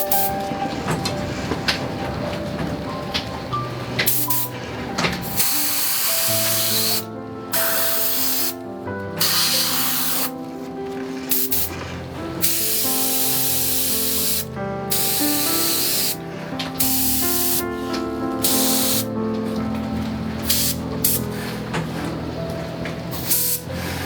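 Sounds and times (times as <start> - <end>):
spray paint cans hissing: 0.0 - 0.8, 4.0 - 4.6, 5.2 - 8.6, 9.2 - 10.4, 11.3 - 11.7, 12.4 - 16.2, 16.8 - 19.2, 20.4 - 21.5, 23.1 - 24.0
background music: 0.0 - 24.0.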